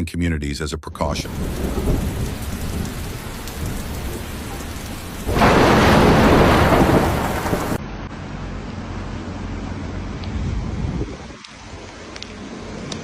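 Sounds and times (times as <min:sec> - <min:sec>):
heavy rain: 0:01.1 - 0:07.8
rumbling thunder: 0:01.2 - 0:07.8
wind: 0:01.2 - 0:13.0.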